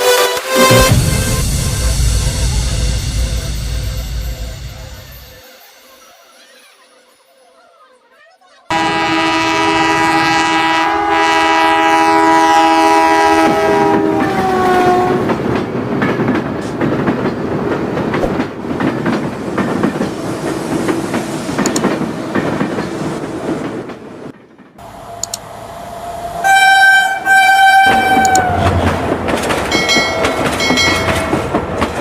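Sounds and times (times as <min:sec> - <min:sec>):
train horn: 0:08.7 - 0:15.4, 0:26.2 - 0:29.0
train wheels clacking on rails: 0:12.7 - 0:25.4, 0:27.8 - 0:32.0.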